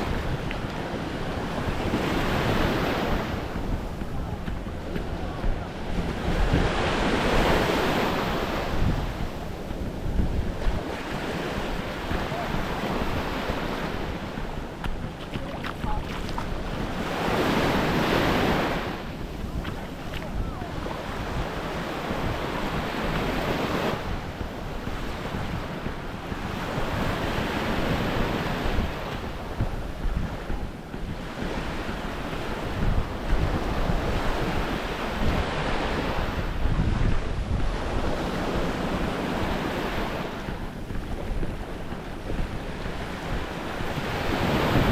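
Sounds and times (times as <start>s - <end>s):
small waves breaking on shore: 0.0s - 44.9s
wind buffeting microphone: 0.0s - 44.9s.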